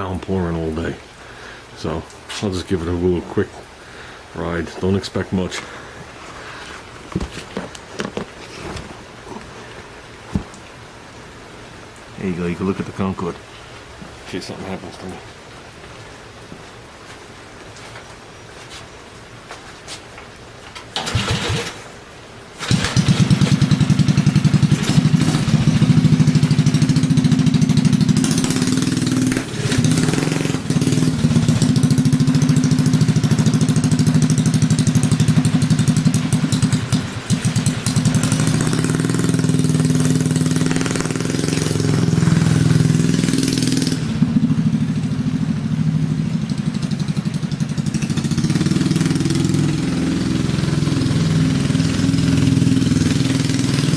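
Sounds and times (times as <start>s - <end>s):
mini bike engine revving: 21.0s - 21.8s, 22.6s - 53.9s.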